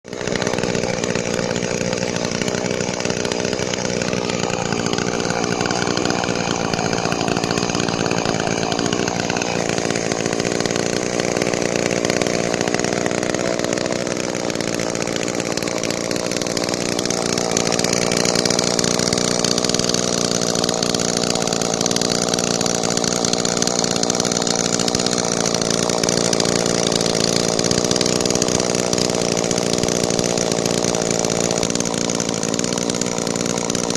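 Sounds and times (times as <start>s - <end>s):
chainsaw running: 0.0s - 33.9s.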